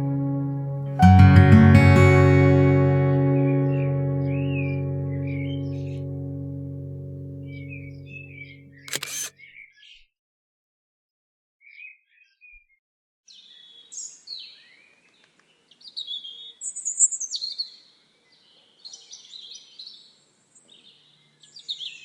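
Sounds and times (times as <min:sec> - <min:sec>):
small birds chirping and singing: 0:03.4 - 0:06.1, 0:11.6 - 0:22.0.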